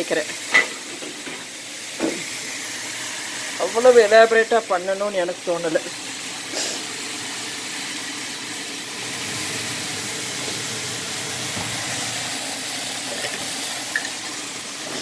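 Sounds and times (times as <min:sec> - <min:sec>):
bitter melon frying in pan: 0:00.0 - 0:15.0.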